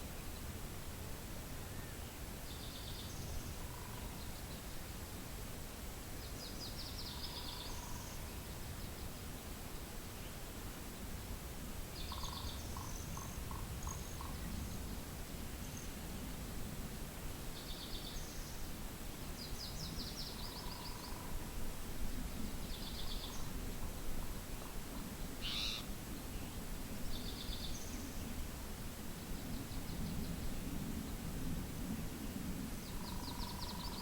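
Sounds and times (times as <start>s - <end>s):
low rumble of wind: 0.0s - 34.0s
small songbirds trilling: 25.4s - 25.8s.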